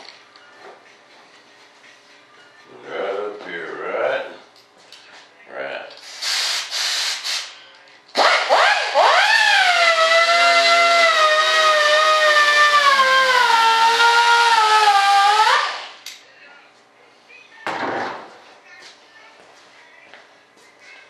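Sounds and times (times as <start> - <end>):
power tool motor whine: 8.2 - 16.0.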